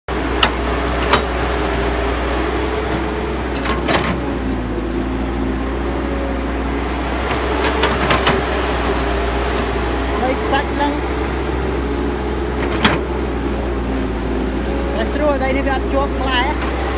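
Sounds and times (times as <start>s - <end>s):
excavator diesel engine running: 0.1s - 16.9s.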